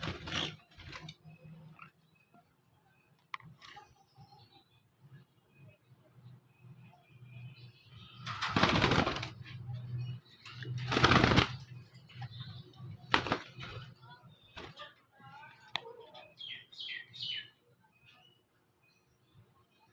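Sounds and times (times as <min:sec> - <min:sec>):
birds fluttering wings: 0:00.0 - 0:01.4, 0:08.3 - 0:09.6, 0:10.4 - 0:14.9.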